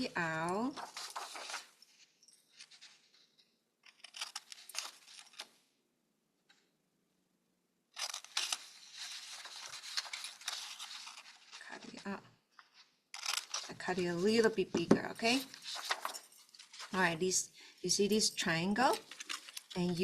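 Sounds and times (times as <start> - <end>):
scissors snipping paper: 3.8 - 5.5, 8.0 - 11.6, 13.1 - 14.1.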